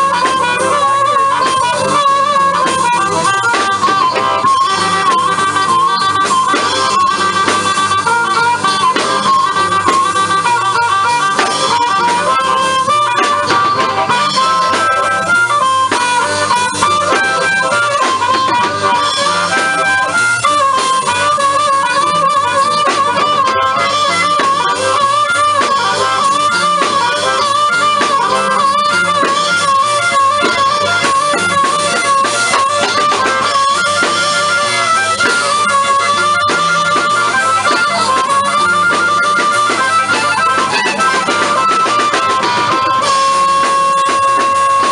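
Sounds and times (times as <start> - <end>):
guitar rhythm: 0.0 - 44.9
harmonica soloing: 0.0 - 44.9.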